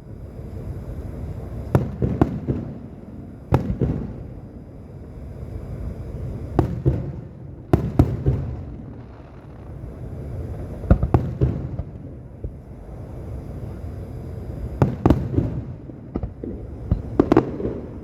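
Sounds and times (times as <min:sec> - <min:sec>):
fireworks bangs: 0:01.5 - 0:04.7, 0:06.2 - 0:12.7, 0:14.5 - 0:18.0.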